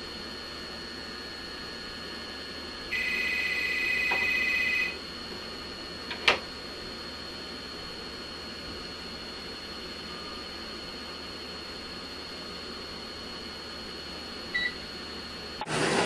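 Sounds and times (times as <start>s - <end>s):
telephone ringing: 2.9s - 5.0s.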